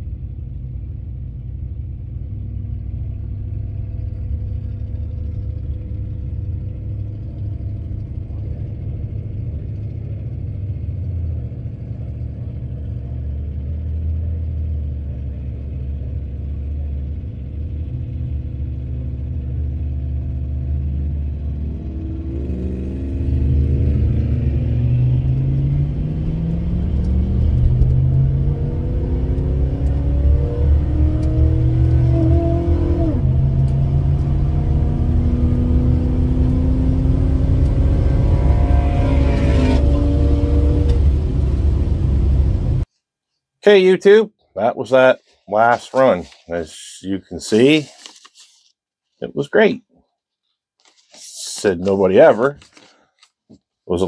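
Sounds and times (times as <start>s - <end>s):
car engine idling: 0.0s - 22.0s
car engine revving: 16.6s - 42.9s.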